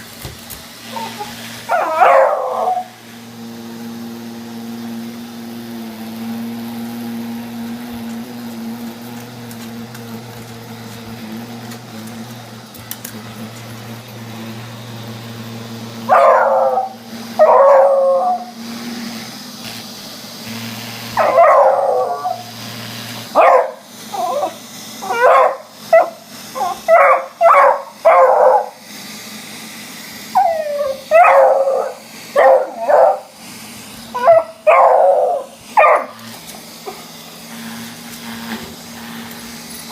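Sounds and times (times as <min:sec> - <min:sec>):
robot vacuum cleaner humming: 0:00.0 - 0:39.9
dog baying and howling: 0:00.9 - 0:03.0, 0:16.1 - 0:18.6, 0:21.2 - 0:22.5, 0:23.4 - 0:28.8, 0:30.3 - 0:33.3, 0:34.1 - 0:36.2
dog barking: 0:01.0 - 0:02.9, 0:16.1 - 0:18.5, 0:21.2 - 0:22.4, 0:23.4 - 0:23.8, 0:24.4 - 0:28.8, 0:31.1 - 0:33.3, 0:34.2 - 0:36.2.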